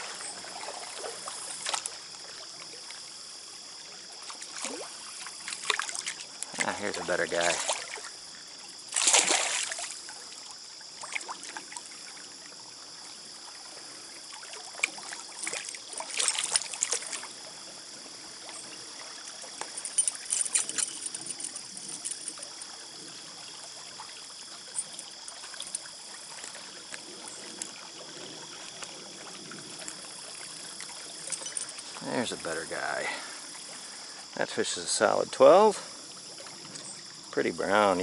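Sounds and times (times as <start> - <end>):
stream running: 0.0 - 38.0
fish splashing: 9.0 - 10.0, 14.4 - 17.5.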